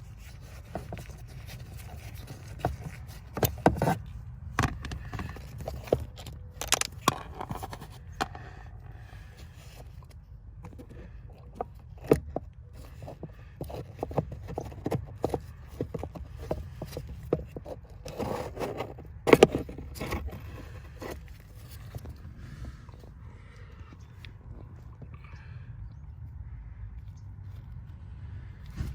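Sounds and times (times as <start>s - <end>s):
tools and plastic parts clicking: 0.1s - 8.5s, 10.6s - 22.2s.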